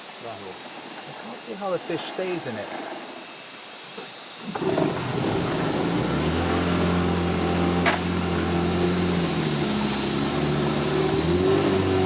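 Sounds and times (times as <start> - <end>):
boat engine running: 4.4 - 12.0.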